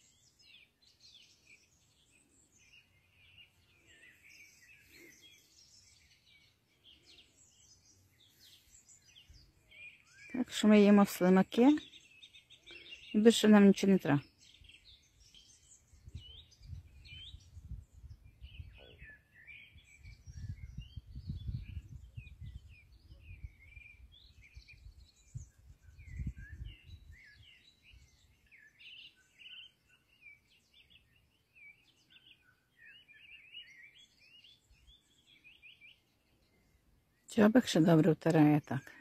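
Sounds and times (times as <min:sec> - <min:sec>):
songbirds chirping: 0:00.0 - 0:39.0
low rumbling on microphone: 0:15.9 - 0:18.8, 0:20.1 - 0:27.1.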